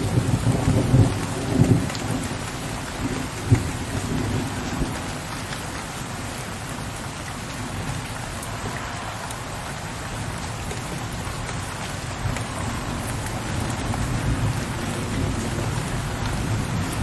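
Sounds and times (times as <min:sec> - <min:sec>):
low thunder rumble: 0:00.0 - 0:05.5, 0:09.9 - 0:17.0
rain falling: 0:00.0 - 0:17.0.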